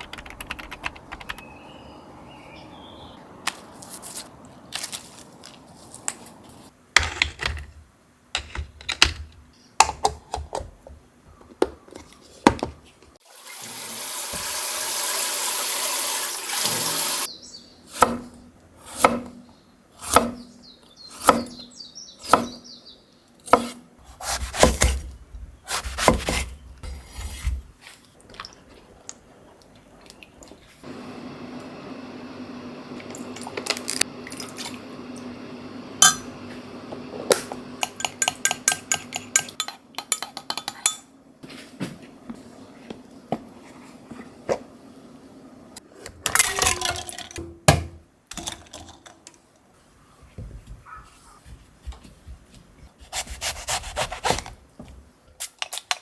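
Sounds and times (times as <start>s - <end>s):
tap water running: 13.2s - 17.3s, 32.8s - 35.4s
utensils and dishes clattering: 37.8s - 41.1s.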